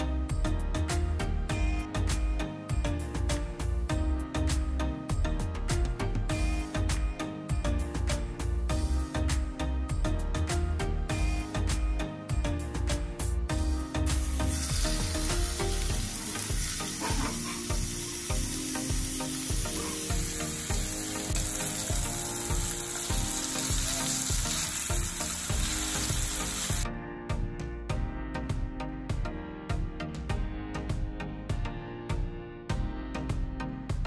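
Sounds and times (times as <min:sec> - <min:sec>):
background music with steady beat: 0:00.0 - 0:34.0
chicken sizzling in frying pan: 0:14.1 - 0:26.8.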